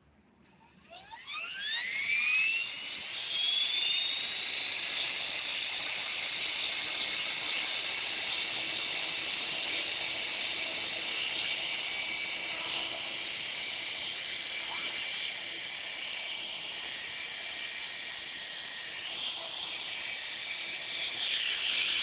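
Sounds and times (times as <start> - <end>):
helicopter motor and rotor whine: 0.9 - 22.0.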